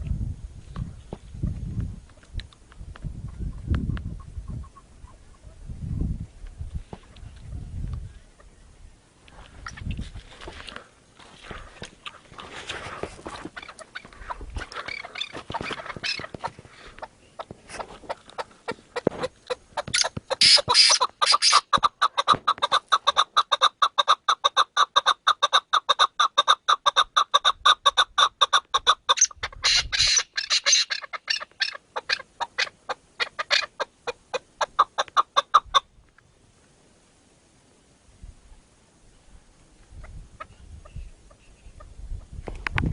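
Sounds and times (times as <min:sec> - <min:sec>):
partridge clucking calls: 0:03.2 - 0:05.6, 0:11.5 - 0:35.9, 0:40.0 - 0:42.3.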